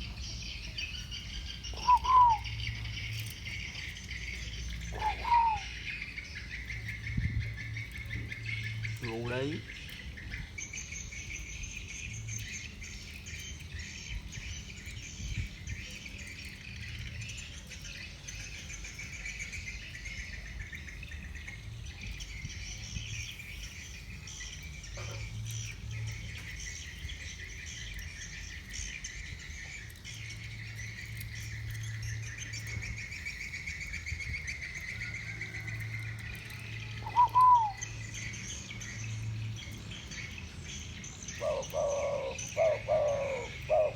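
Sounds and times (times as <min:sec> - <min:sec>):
insects chirping: 0:00.0 - 0:09.8
birds chirping: 0:00.0 - 0:43.9
loud arched bird call: 0:01.7 - 0:02.6, 0:04.9 - 0:05.9, 0:37.0 - 0:37.9.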